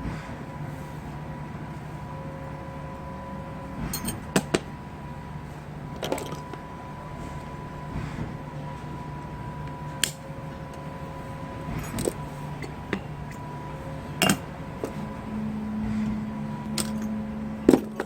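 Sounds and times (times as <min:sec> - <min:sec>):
low steady hum: 0:00.0 - 0:18.0
steady mechanical hum: 0:00.0 - 0:18.0
metallic clinks of tools: 0:03.9 - 0:04.2.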